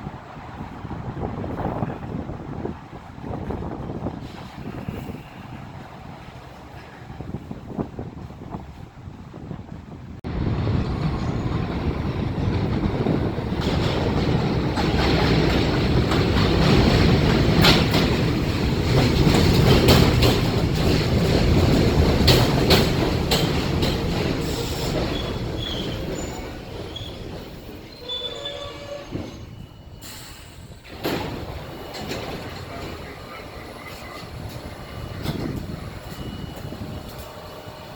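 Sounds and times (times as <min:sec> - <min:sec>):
subway train passing: 0:00.0 - 0:37.9
wheels clicking over rail joints: 0:10.3 - 0:37.9
wheel squeals: 0:24.4 - 0:37.9.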